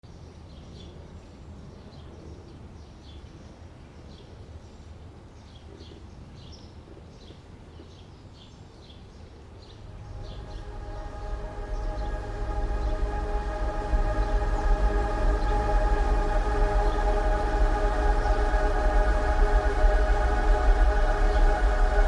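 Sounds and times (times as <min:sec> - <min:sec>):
steady low rumble: 0:09.8 - 0:22.0.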